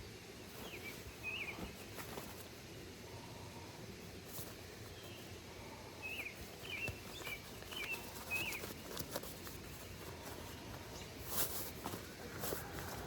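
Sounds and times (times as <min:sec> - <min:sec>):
bird chirping: 0:00.6 - 0:01.7, 0:04.9 - 0:09.0.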